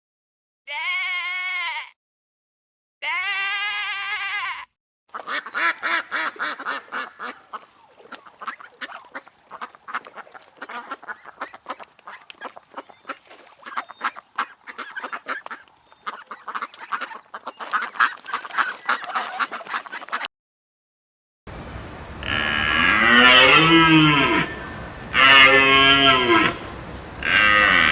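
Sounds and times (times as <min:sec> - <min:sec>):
waterfowl calling: 0:05.1 - 0:20.3, 0:21.8 - 0:27.9.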